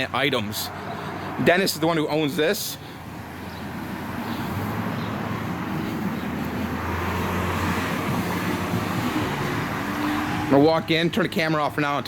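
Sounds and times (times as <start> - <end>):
motor vehicle running: 2.6 - 11.9.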